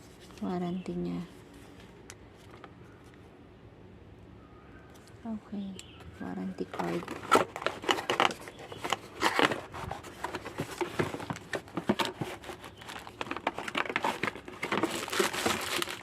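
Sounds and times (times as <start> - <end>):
packaging rustling and crinkling: 6.6 - 16.0.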